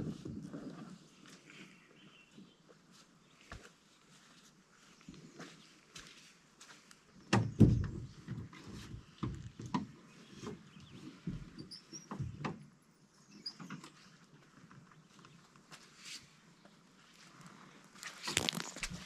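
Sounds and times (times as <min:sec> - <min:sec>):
irregular thuds and knocks: 0:07.3 - 0:12.6
faint bird chirps: 0:12.9 - 0:14.2.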